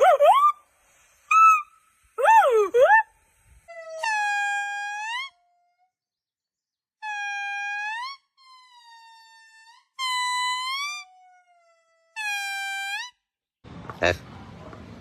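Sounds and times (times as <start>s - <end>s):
monkey calls: 0.0s - 0.6s, 1.3s - 5.5s.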